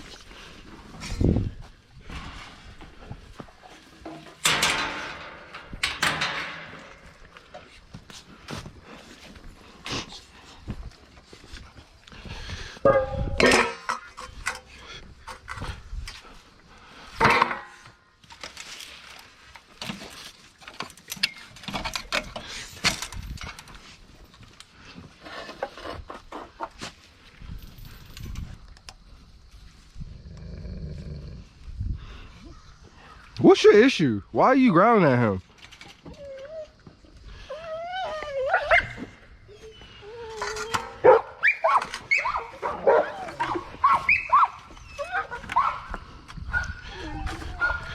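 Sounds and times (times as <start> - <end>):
dog food bowls clattering: 3.7 - 7.3, 12.8 - 15.7
dogs whining: 36.0 - 47.9
dogs yelping: 36.0 - 47.9.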